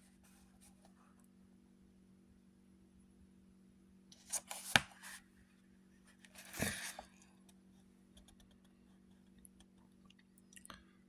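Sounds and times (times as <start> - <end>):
paper pages rustling: 4.2 - 5.2, 6.3 - 7.1.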